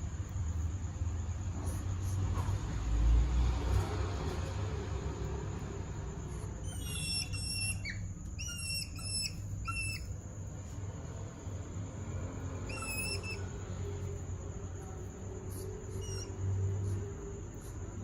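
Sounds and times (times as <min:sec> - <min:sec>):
hedgehogs whistling chirps: 0:06.6 - 0:10.2, 0:12.6 - 0:13.6, 0:15.6 - 0:16.4.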